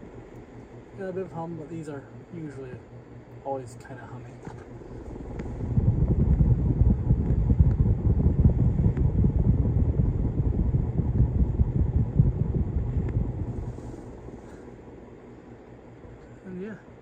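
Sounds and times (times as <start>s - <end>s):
ceiling fan motor hum: 0.0s - 17.0s
wind buffeting microphone: 5.0s - 14.4s.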